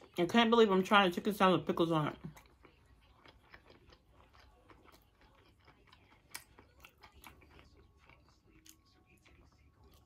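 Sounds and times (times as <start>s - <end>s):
person chewing with crunches: 2.1s - 10.0s.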